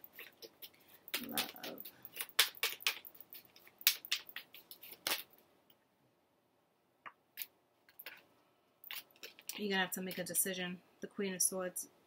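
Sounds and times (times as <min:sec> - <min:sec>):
cards being shuffled: 0:00.1 - 0:05.3, 0:08.9 - 0:09.6.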